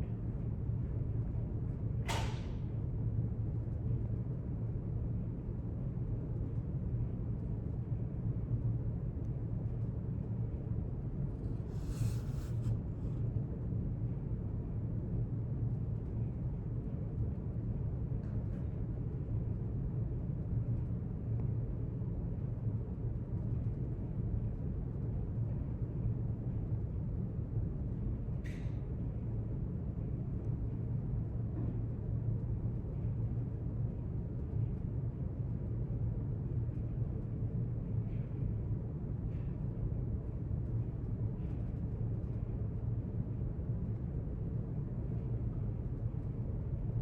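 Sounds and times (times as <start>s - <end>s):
low room hum: 0.0s - 47.0s
soft rustle: 11.4s - 13.2s.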